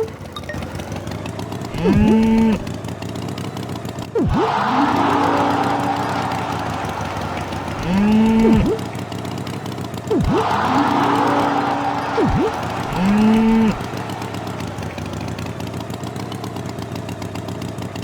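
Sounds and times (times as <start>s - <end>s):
cartoon cow mooing: 1.7s - 2.7s, 4.2s - 9.0s, 10.1s - 14.9s.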